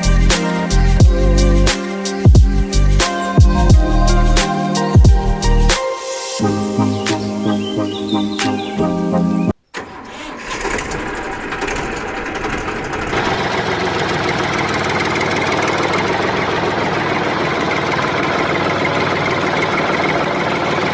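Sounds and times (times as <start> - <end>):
mini tractor engine running: 9.8 - 20.9.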